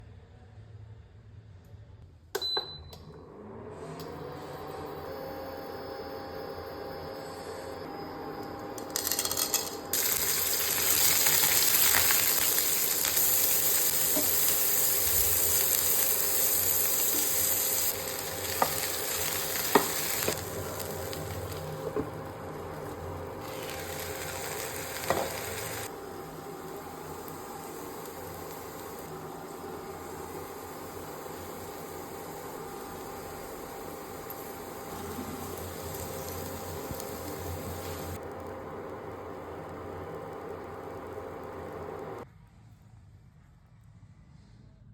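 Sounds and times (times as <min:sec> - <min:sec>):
okra sizzling in hot oil: 0:08.9 - 0:42.2.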